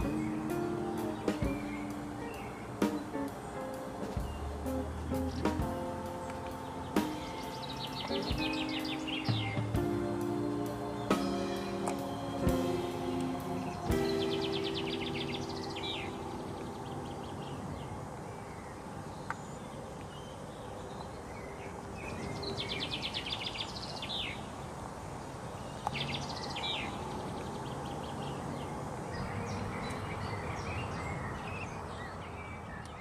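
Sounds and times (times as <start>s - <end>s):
birds chirping trills: 0.0s - 24.4s
outdoor background hiss: 0.0s - 33.0s.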